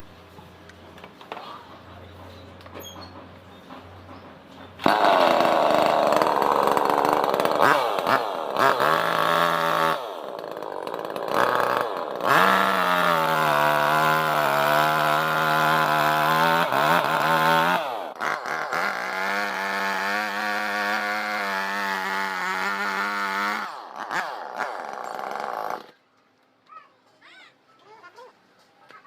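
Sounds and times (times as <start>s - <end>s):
chainsaw engine revving: 4.8s - 26.0s.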